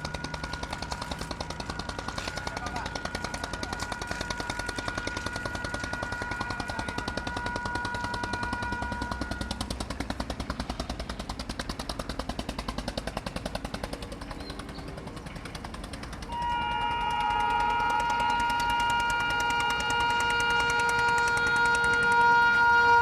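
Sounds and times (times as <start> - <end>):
train horn: 0.0 - 10.1, 16.3 - 23.0
train wheels clattering: 0.0 - 23.0.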